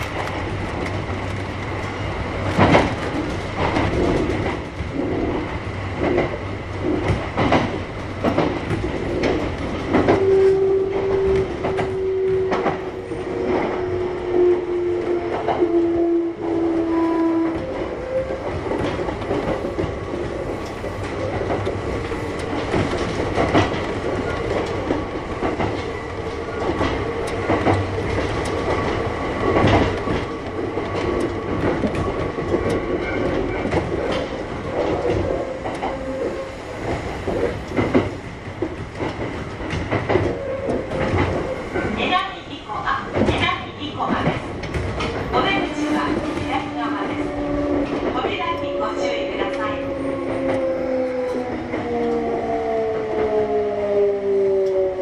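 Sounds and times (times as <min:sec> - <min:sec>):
wheels clicking over rail joints: 0:00.0 - 0:13.8, 0:17.4 - 0:42.4.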